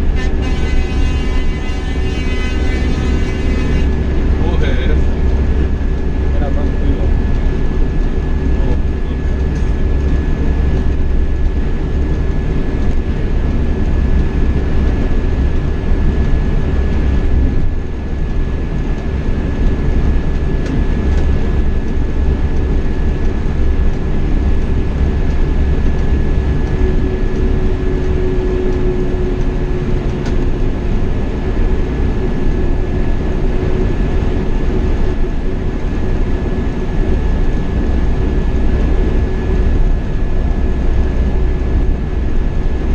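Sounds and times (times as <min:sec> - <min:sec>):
coach engine and road rumble: 0:00.0 - 0:42.9
thin high whine: 0:00.2 - 0:03.9.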